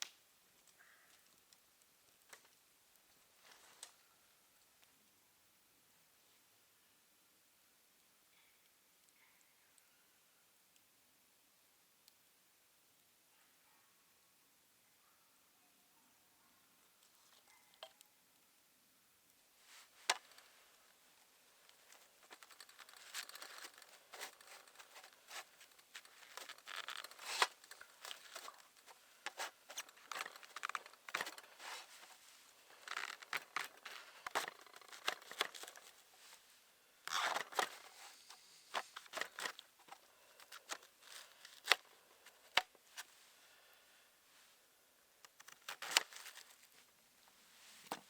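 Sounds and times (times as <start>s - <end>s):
plastic packaging crinkling and tearing: 21.7s - 36.4s, 37.1s - 43.1s, 45.3s - 46.9s.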